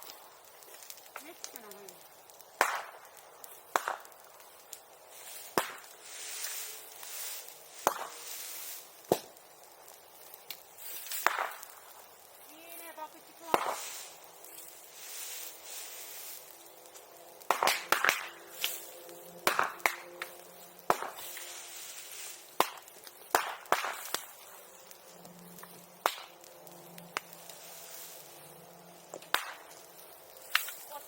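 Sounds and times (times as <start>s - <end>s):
bamboo bursting pops: 0.0s - 6.0s, 7.0s - 8.4s, 9.0s - 12.3s, 13.4s - 14.7s, 16.6s - 21.6s, 22.2s - 27.6s, 29.0s - 31.0s
fire crackling: 0.0s - 31.0s.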